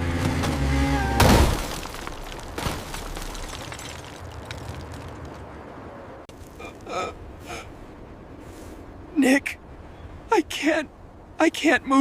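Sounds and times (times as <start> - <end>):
rumble with scattered knocks: 0.0 - 5.7
engine hum: 0.0 - 10.3.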